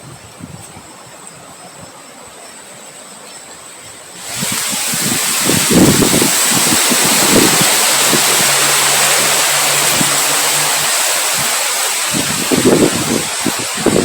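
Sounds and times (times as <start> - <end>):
strong wind blowing: 4.2 - 14.0.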